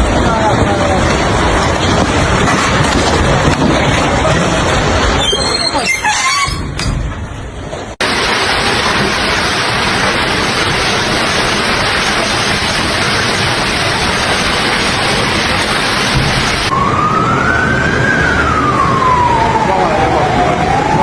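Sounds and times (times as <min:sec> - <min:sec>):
heavy rain pouring: 0:00.0 - 0:05.3, 0:08.0 - 0:21.0
emergency vehicle siren wailing: 0:14.1 - 0:21.0.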